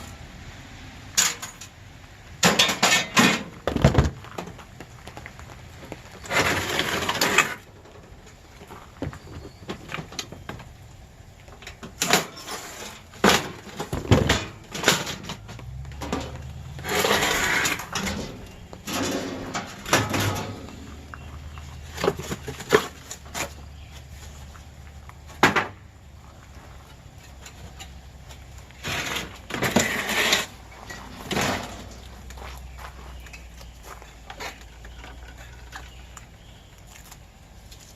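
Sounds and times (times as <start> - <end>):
metal knocks and clanks: 2.4 - 4.6, 11.6 - 23.6, 28.8 - 32.4
metal scraping and tearing: 6.2 - 8.0, 11.9 - 21.0, 28.8 - 32.1.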